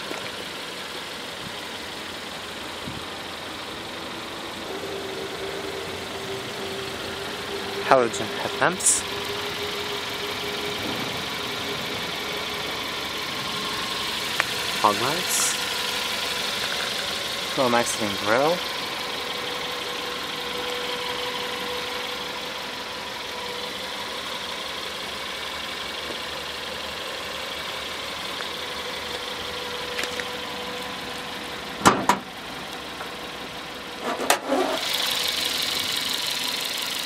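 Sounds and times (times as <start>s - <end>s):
car engine idling: 0.0s - 37.0s
car bonnet clunks: 31.8s - 32.3s.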